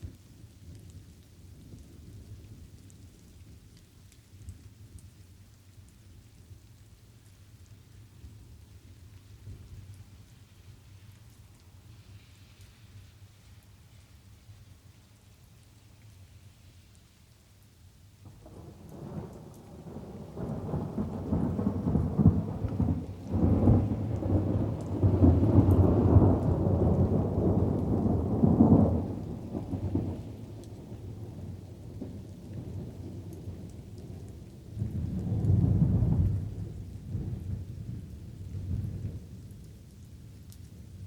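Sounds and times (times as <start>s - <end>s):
light rain hiss: 0.0s - 41.0s
rolling thunder: 18.2s - 39.4s.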